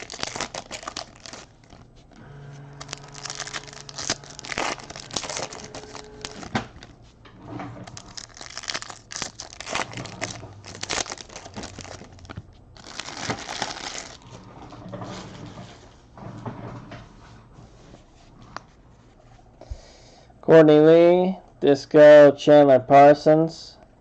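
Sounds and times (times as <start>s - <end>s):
plastic wrappers tearing: 0.0s - 2.1s, 2.7s - 7.0s, 7.8s - 14.8s
plastic wrappers crinkling: 0.0s - 7.2s, 7.8s - 14.8s.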